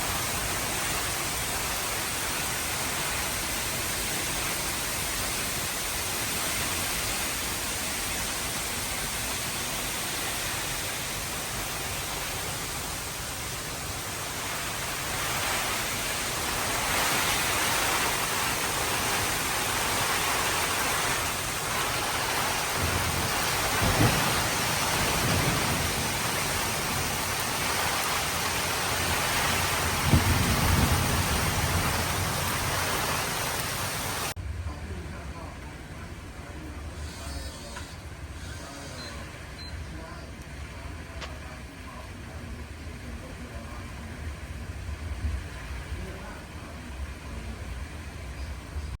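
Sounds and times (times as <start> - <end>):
heavy rain pouring: 0.0 - 36.9, 38.0 - 49.0
sudden low jolts: 13.4 - 33.8
low thunder rumbles: 13.8 - 35.2.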